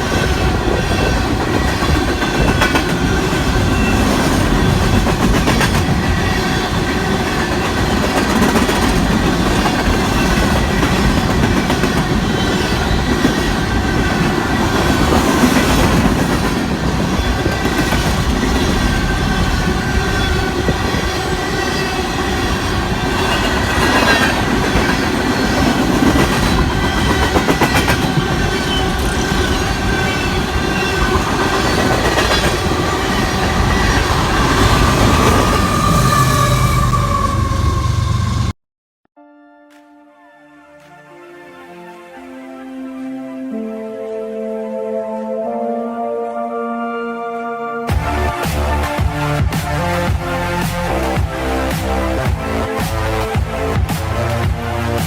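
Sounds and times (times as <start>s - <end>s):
clickety-clack over rail joints: 0.0s - 35.5s
train wheels rumbling on rails: 0.0s - 38.5s, 47.9s - 55.0s.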